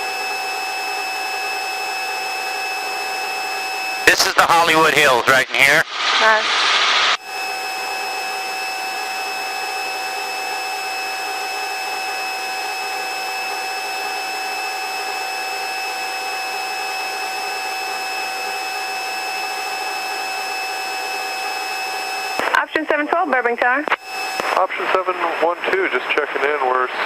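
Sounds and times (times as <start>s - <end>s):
helicopter cabin noise: 1.5s - 26.5s
high whining tones: 23.8s - 25.5s.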